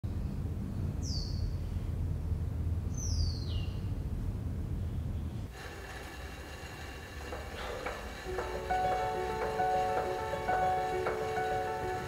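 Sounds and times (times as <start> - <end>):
low steady rumble: 0.0 - 6.0
soft music: 7.6 - 12.0.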